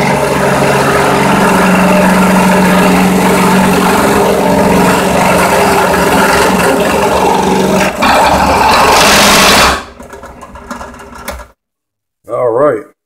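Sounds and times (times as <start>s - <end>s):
drill bit cutting: 0.0s - 10.0s
drill press motor humming: 0.0s - 11.6s.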